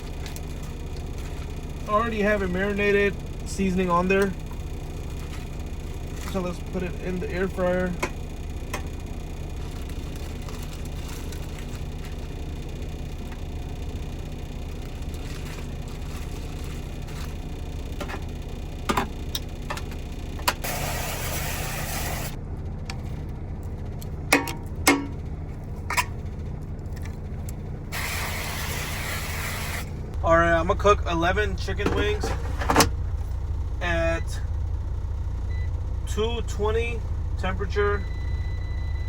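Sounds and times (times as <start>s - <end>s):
truck engine idling: 0.0s - 39.0s
loud hiss: 20.6s - 22.4s, 27.9s - 29.9s.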